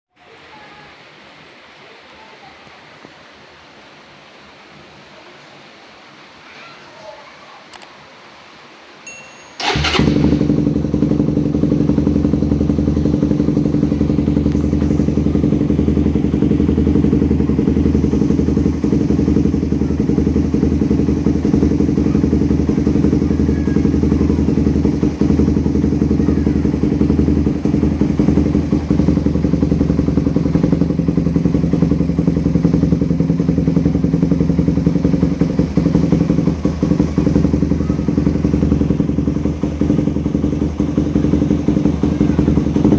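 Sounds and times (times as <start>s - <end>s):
motorcycle engine starting and idling: 9.6s - 42.9s.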